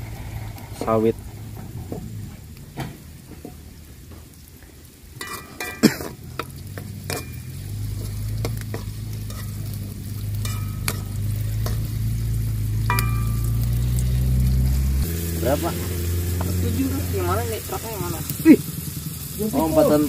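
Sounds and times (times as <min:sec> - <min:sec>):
low engine drone: 0:00.0 - 0:02.9, 0:06.2 - 0:20.0
food sizzling in oil: 0:00.0 - 0:20.0
spatula scraping a wok: 0:05.2 - 0:16.5.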